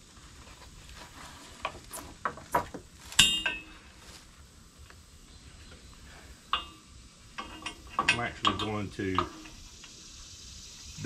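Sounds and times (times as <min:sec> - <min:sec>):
loud ringing metal clank: 0:03.2 - 0:03.8
metal clinks and rattles: 0:06.5 - 0:09.6.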